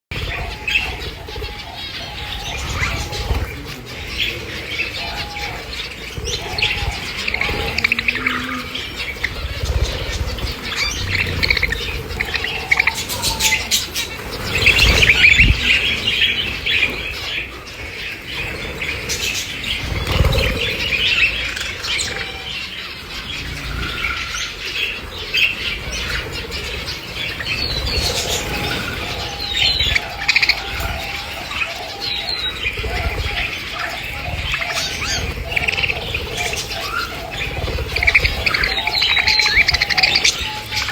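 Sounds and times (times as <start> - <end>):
lovebirds chirping: 0.1 - 40.9.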